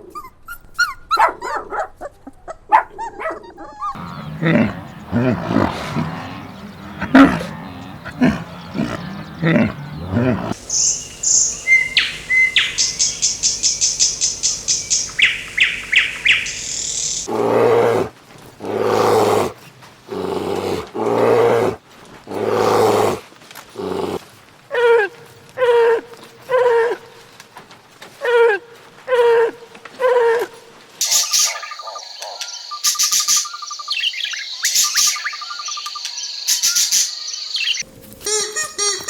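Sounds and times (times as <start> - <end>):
small birds chirping and trilling: 3.8 - 17.3, 31.0 - 37.8
loud drawn-out animal calls: 3.8 - 19.5.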